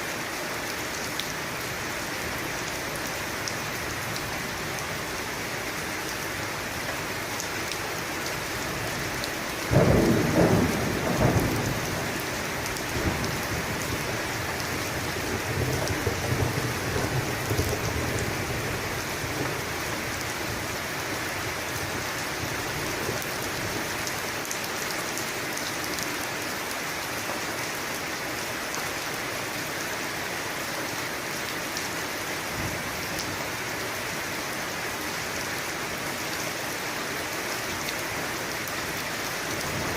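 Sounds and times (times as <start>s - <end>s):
heavy rain falling: 0.0s - 39.9s
thunder rumbling: 9.7s - 18.8s.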